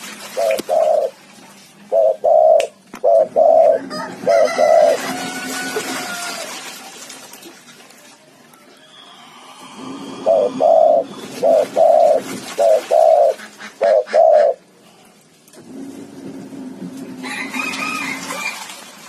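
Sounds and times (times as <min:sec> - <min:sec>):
dove cooing: 0:00.3 - 0:01.2, 0:01.9 - 0:05.1, 0:09.2 - 0:14.6.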